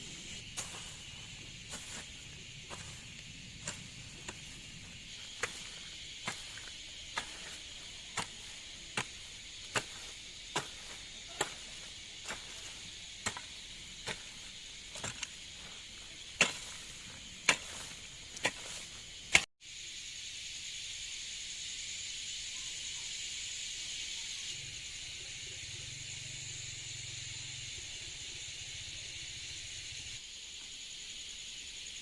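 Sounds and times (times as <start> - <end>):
insect trill: 0.0 - 32.0
hand tool chopping into ground: 0.5 - 19.5.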